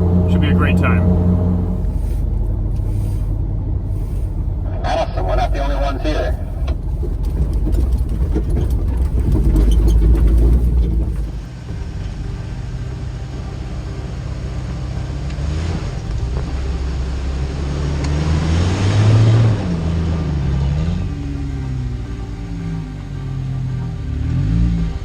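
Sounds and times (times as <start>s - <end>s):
vehicle engine rumble: 0.0s - 25.0s
rattles: 1.7s - 12.6s.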